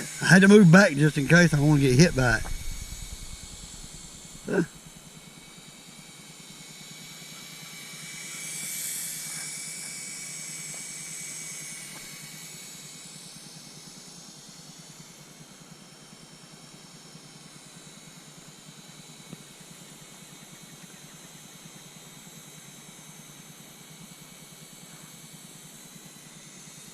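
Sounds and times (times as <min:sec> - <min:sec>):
toy helicopter motor whine: 0:00.0 - 0:26.9
hiss: 0:05.7 - 0:16.0.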